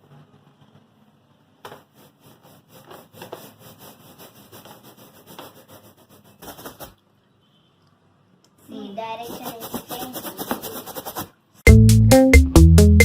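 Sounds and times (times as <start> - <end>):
quick rubbing strokes: 1.6 - 7.0, 9.0 - 11.5.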